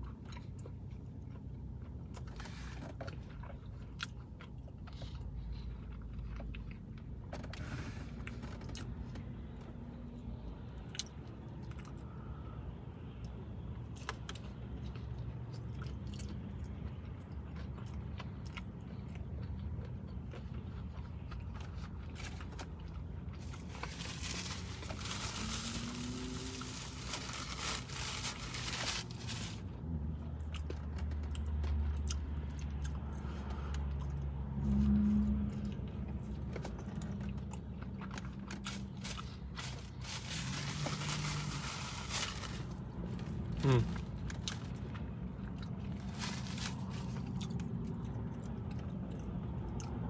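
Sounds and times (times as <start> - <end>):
chewing and crunching food: 0.0 - 50.0
paper bag rustling: 23.4 - 29.7, 38.7 - 42.8, 46.0 - 47.2.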